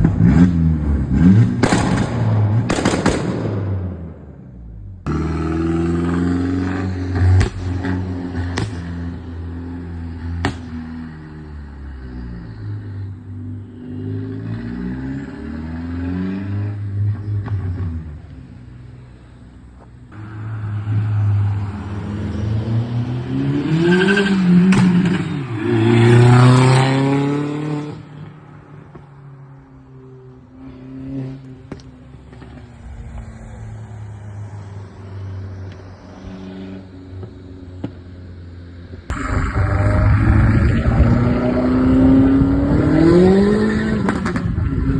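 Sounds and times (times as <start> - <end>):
exhaust pops: 1.4 - 3.5, 7.1 - 9.2, 10.4 - 10.9
car engine revving: 4.8 - 29.0, 29.9 - 38.0, 39.1 - 44.9.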